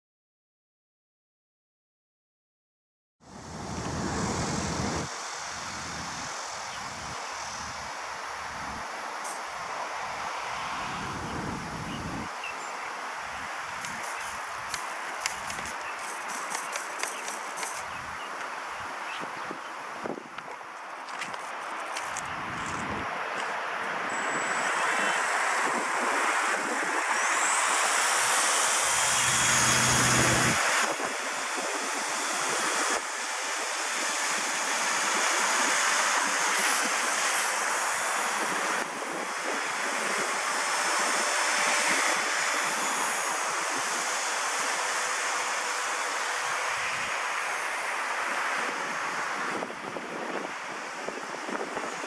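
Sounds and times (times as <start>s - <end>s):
rc helicopter electric whine: 3.3s - 12.5s, 13.2s - 22.8s, 24.0s - 52.0s
wind buffeting microphone: 3.5s - 7.9s, 10.7s - 12.4s, 21.2s - 28.1s, 48.6s - 52.0s.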